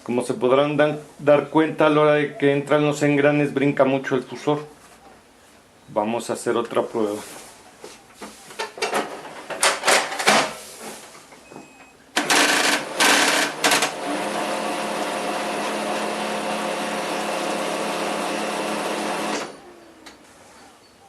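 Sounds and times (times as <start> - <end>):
printer mechanical running: 12.2 - 20.0.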